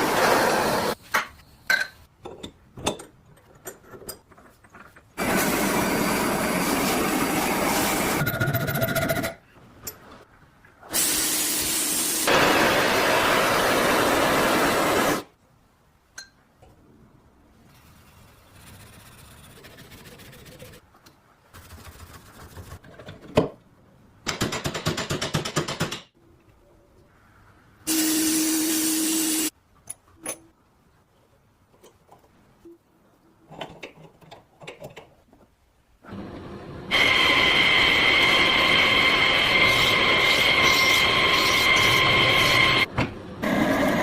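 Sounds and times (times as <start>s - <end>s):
workshop power tools running: 36.1s - 44.0s.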